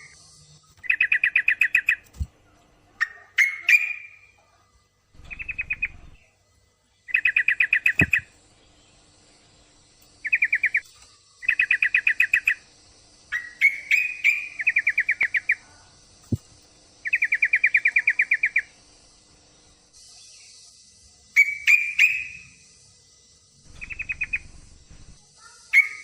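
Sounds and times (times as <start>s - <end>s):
bird chattering calls: 5.2s - 6.2s, 7.1s - 8.3s, 10.2s - 10.8s, 13.3s - 15.7s, 17.0s - 18.7s, 23.7s - 26.0s.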